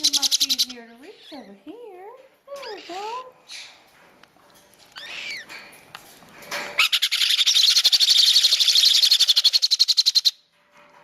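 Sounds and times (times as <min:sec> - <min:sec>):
baby parrot feeding call: 0:00.0 - 0:01.5, 0:02.6 - 0:03.8, 0:05.0 - 0:05.5, 0:06.8 - 0:10.4.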